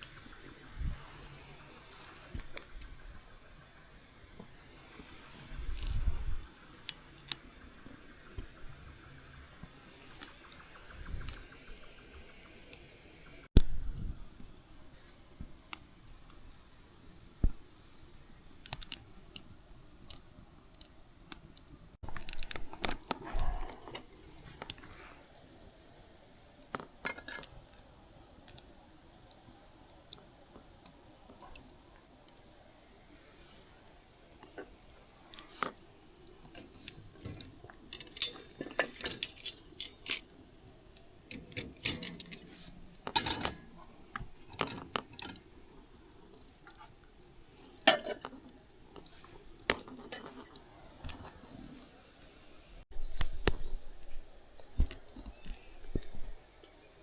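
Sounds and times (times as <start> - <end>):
metal and glass items clinking: 36.6 - 40.4, 41.3 - 43.8.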